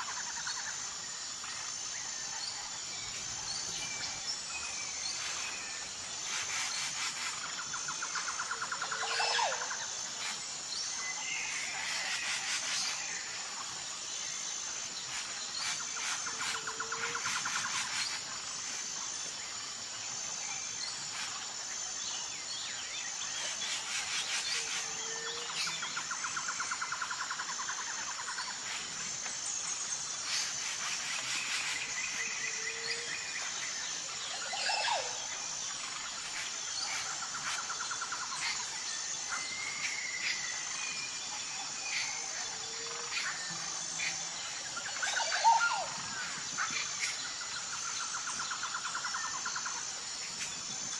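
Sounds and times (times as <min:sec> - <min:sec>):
high pulsing insect buzz: 0:00.0 - 0:50.9
birds calling and trilling: 0:14.6 - 0:50.9.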